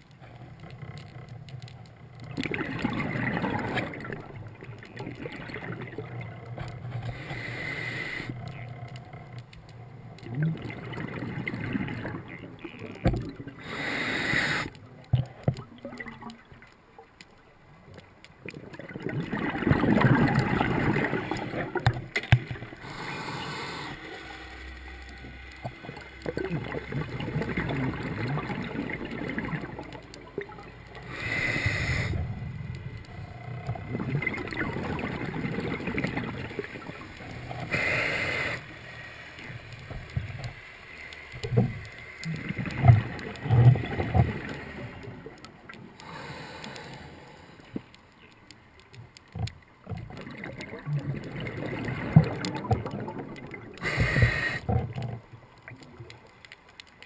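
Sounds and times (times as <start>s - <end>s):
exhaled air bubbling: 0.0s - 57.0s
regulator inhale hiss: 7.1s - 8.4s, 13.6s - 14.8s, 22.8s - 25.6s, 31.0s - 32.4s, 37.6s - 39.9s, 46.0s - 47.8s, 53.8s - 54.7s.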